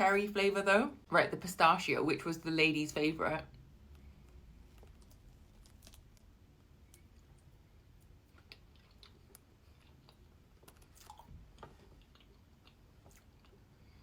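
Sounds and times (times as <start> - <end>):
chewing: 6.9 - 14.0.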